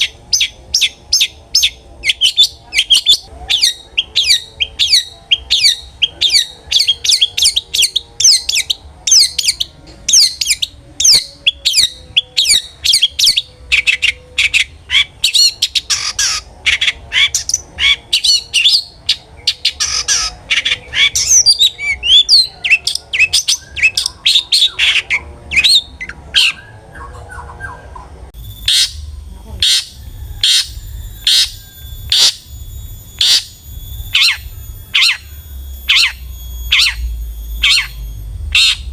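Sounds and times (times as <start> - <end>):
shrike singing sharp repeated notes: 0.0 - 38.9
thin high ringing tone: 28.3 - 38.9.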